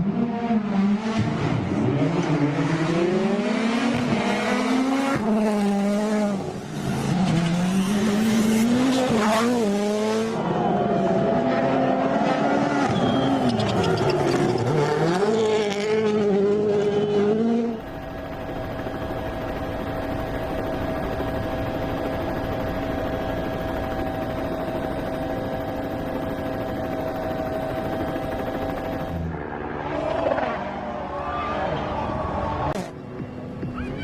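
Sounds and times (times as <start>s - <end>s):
rally car engine revving: 0.0s - 17.8s
steady engine drone: 1.6s - 31.2s.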